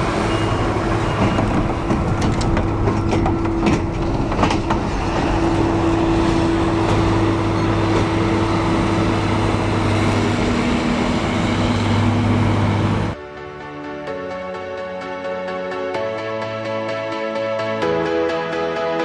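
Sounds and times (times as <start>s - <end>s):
heavy diesel machinery running: 0.0s - 13.2s
knocks: 1.1s - 7.3s.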